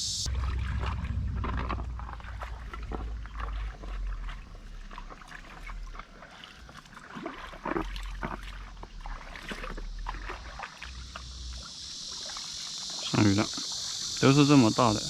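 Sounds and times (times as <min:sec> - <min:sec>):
steady low rumble: 0:00.0 - 0:06.0
stream babbling and splashing: 0:00.2 - 0:15.0.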